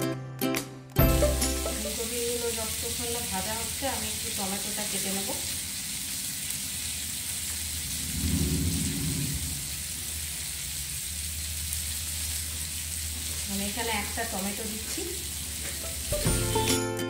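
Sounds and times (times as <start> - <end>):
vegetables sizzling in oil: 1.0 - 17.0
low rumble: 7.4 - 12.3
low hum: 7.5 - 13.4.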